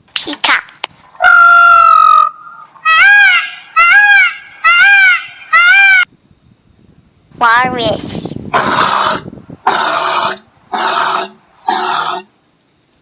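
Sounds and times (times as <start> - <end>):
peacock calling: 1.1 - 6.1.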